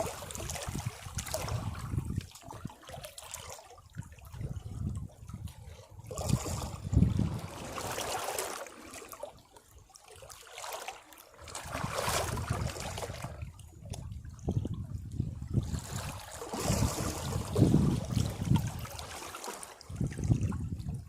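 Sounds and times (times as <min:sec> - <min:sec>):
sea waves washing against rocks: 0:15.6 - 0:20.2.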